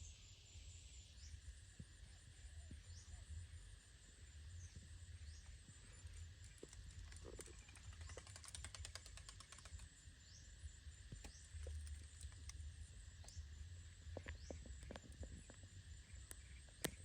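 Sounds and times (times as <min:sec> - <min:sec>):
low outdoor rumble: 0:00.0 - 0:17.0
rapid fine ticking: 0:06.4 - 0:09.9
small clicks: 0:06.4 - 0:09.9, 0:11.1 - 0:13.4.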